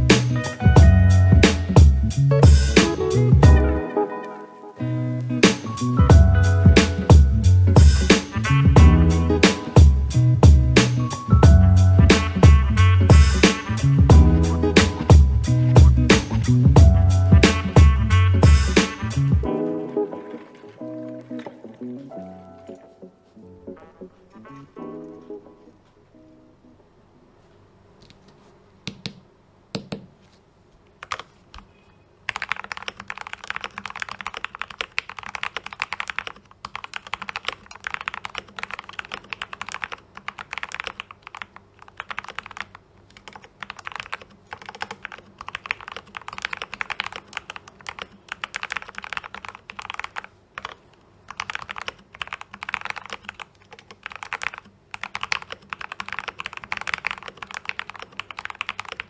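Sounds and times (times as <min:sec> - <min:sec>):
mechanical keyboard typing: 0:31.0 - 0:31.7, 0:32.3 - 0:59.0.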